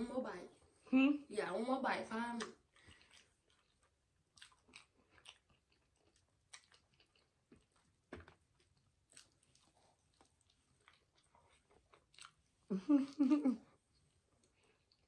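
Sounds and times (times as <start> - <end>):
faint chewing and mouth smacks: 2.3 - 15.0.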